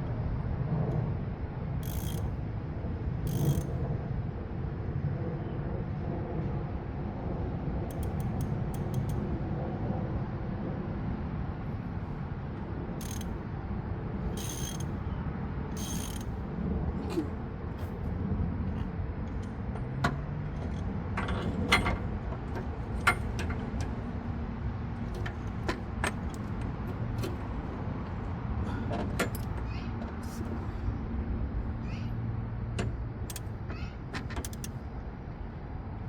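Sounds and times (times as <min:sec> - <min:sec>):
sharp metallic clicks: 0:01.8 - 0:02.4, 0:03.3 - 0:03.7, 0:07.9 - 0:09.2, 0:13.0 - 0:13.4, 0:14.4 - 0:15.0, 0:15.8 - 0:16.3, 0:32.8 - 0:33.5, 0:34.4 - 0:34.8
socket ratchet ratcheting: 0:01.8 - 0:02.4, 0:03.3 - 0:03.8, 0:07.9 - 0:09.3, 0:13.0 - 0:13.4, 0:14.4 - 0:15.0, 0:15.8 - 0:16.4, 0:34.4 - 0:34.8.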